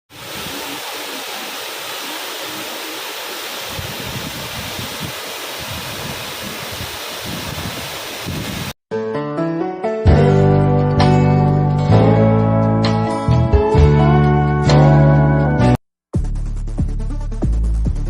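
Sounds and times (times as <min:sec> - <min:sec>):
waterfall rushing: 0:00.1 - 0:08.8
wind buffeting microphone: 0:03.6 - 0:08.8.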